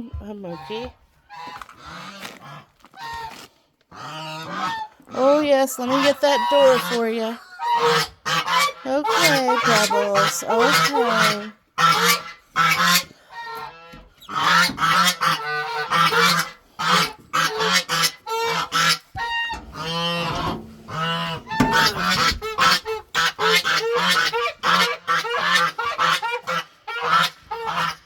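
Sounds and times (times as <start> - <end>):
geese honking: 0.4 - 28.0.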